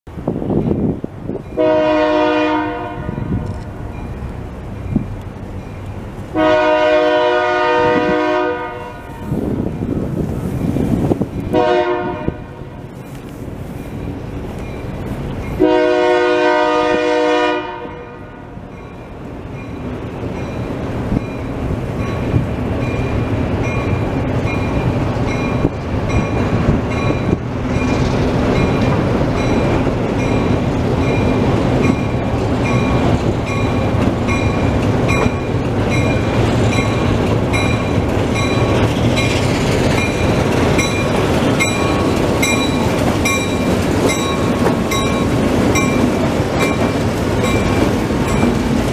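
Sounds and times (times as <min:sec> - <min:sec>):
train engine and rail noise: 0:00.1 - 0:48.9
locomotive horn blast: 0:01.6 - 0:03.5, 0:06.3 - 0:09.4, 0:11.5 - 0:13.0, 0:15.6 - 0:18.6
bell ringing: 0:40.0 - 0:48.5.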